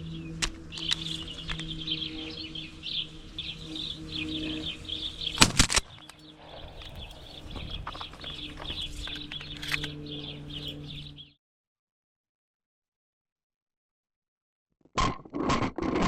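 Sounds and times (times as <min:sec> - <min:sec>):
birds chirping and chattering: 0:00.0 - 0:11.4
steady low hum: 0:00.0 - 0:11.4.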